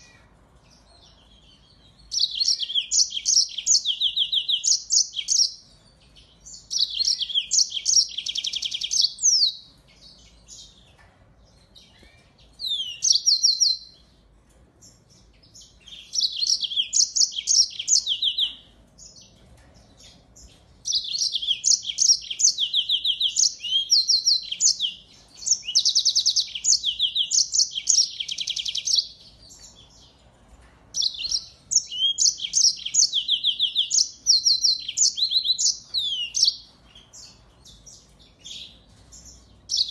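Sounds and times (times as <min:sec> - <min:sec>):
finch singing trills: 0:00.0 - 0:14.2, 0:14.8 - 0:30.2, 0:31.0 - 0:39.9.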